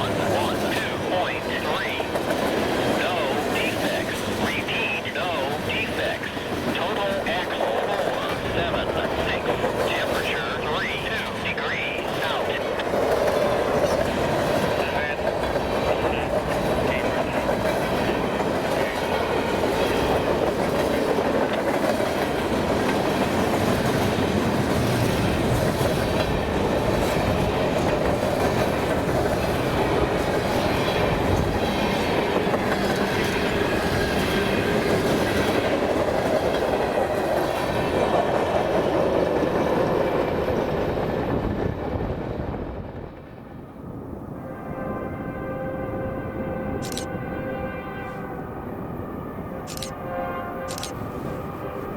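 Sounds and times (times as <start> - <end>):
train wheels clacking over rail joints: 12.0 - 41.1.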